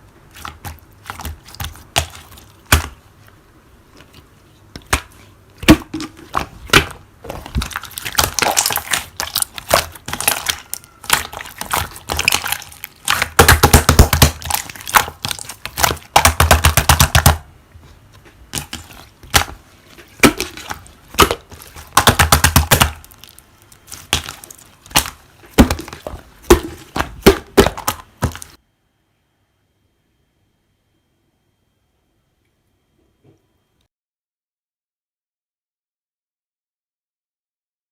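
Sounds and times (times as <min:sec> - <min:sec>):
slime squished by hand crackling: 0:04.8 - 0:17.4, 0:18.6 - 0:28.6.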